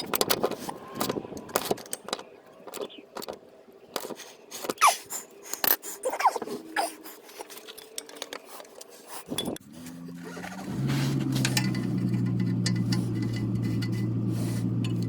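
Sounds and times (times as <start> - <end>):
short squeaks: 4.7 - 5.1
metal clinking and scraping: 7.3 - 15.0.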